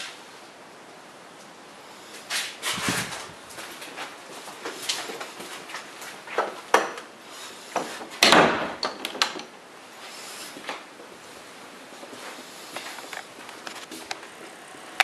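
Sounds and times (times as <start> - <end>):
door scraping: 2.3 - 3.4.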